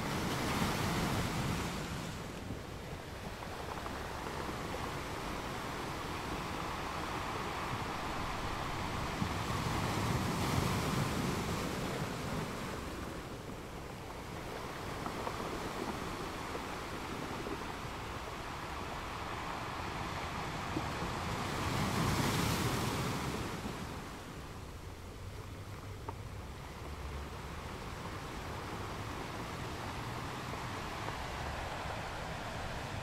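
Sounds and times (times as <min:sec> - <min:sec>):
ocean waves washing in: 0:00.0 - 0:25.6, 0:26.3 - 0:33.0.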